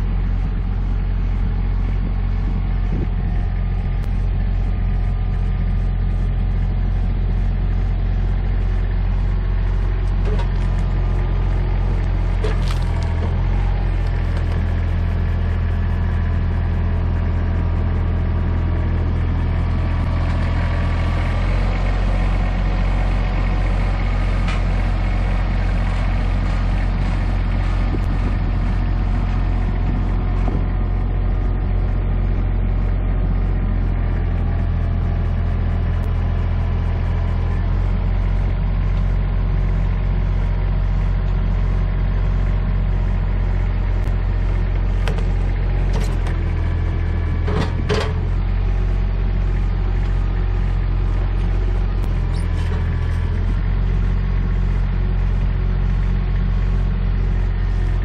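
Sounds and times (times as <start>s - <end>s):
tractor engine running: 0.0s - 58.0s
wood cracking: 12.4s - 13.4s.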